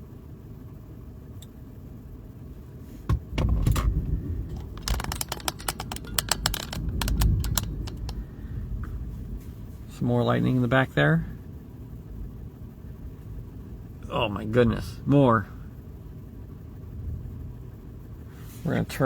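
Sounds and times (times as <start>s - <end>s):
car engine idling hum: 0.0s - 19.0s
thunder rumbling: 3.2s - 10.0s
sharp clicks and taps: 4.5s - 8.2s.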